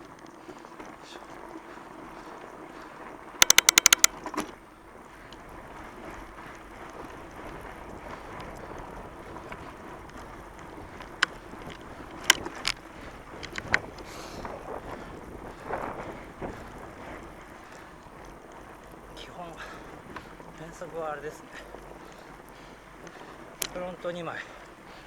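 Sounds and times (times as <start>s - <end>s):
bike clicking: 3.4s - 4.1s, 11.0s - 14.1s.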